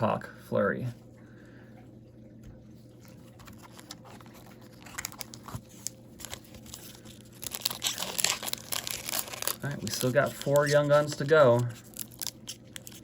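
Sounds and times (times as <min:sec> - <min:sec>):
faint steady hum: 0:00.0 - 0:13.0
plastic wrapper crinkling and tearing: 0:03.0 - 0:13.0.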